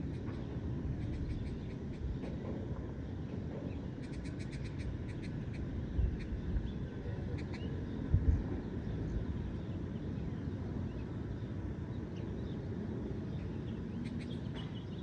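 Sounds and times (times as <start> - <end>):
distant city noise: 0.0 - 15.0
low wind rumble: 0.0 - 15.0
small bird chirping: 0.1 - 2.2, 3.7 - 8.0.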